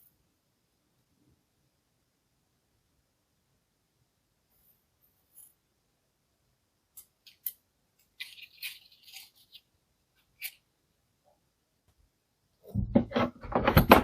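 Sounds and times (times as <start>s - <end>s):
rustling and scraping: 7.2s - 10.6s.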